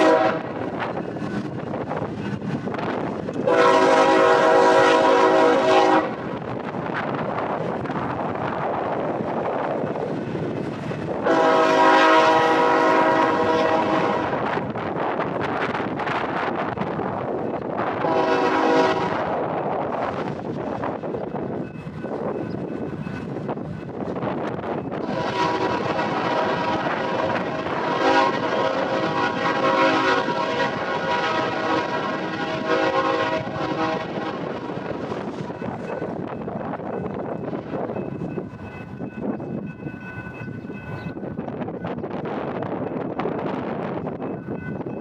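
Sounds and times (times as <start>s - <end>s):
train horn chord: 0.0s - 0.6s, 3.4s - 6.2s, 11.2s - 14.5s, 18.0s - 19.4s, 25.0s - 34.6s
freight train rumbling past: 0.0s - 45.0s.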